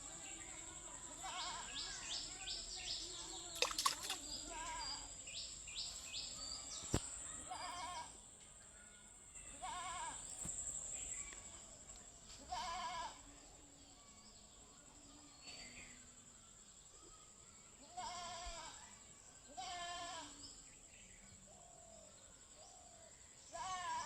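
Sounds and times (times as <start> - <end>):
quick repeated chirps: 3.6 - 4.2.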